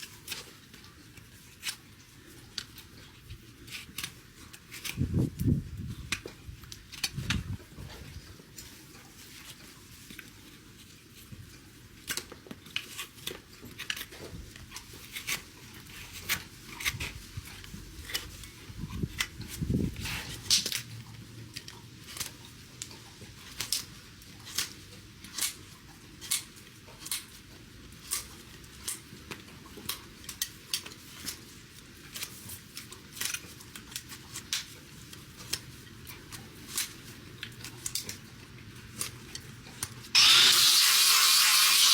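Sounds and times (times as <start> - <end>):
hoof trimmers snipping: 40.2 - 41.9.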